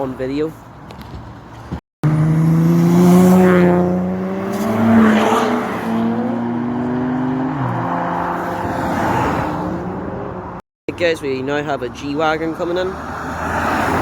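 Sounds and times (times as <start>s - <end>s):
car engine accelerating: 2.0s - 10.6s.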